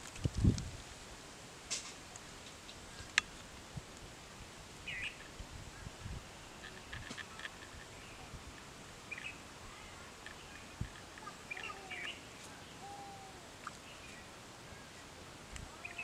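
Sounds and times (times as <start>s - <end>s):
steady outdoor hiss: 0.0s - 16.0s
birds chirping and calling: 9.0s - 15.0s, 15.8s - 16.0s.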